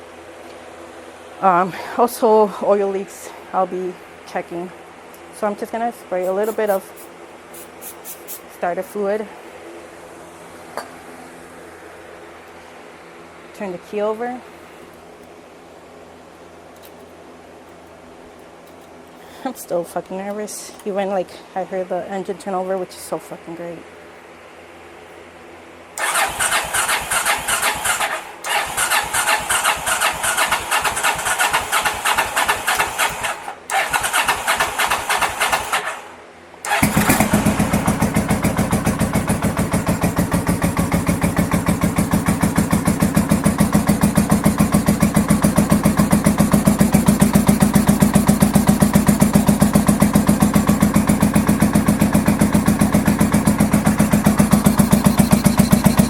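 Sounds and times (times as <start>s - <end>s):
motorcycle engine cranking: 26.0s - 36.0s, 36.7s - 56.0s
motorcycle engine running steadily: 36.8s - 56.0s.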